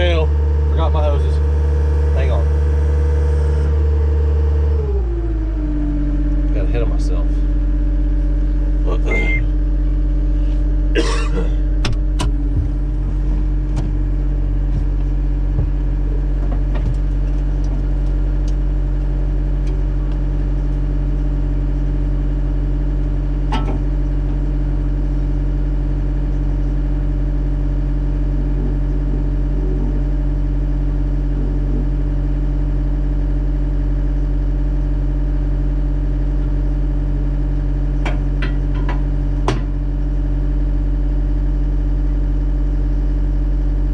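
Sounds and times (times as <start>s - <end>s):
diesel engine pulsing drone: 0.0s - 43.9s.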